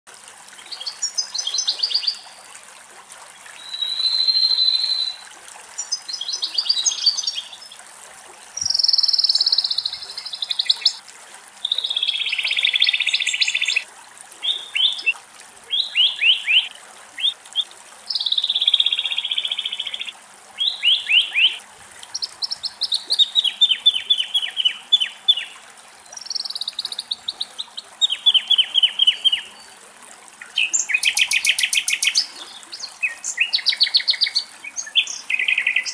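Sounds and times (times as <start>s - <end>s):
nightingale singing: 8.6s - 11.0s, 14.4s - 15.1s, 15.7s - 21.6s, 26.2s - 29.6s.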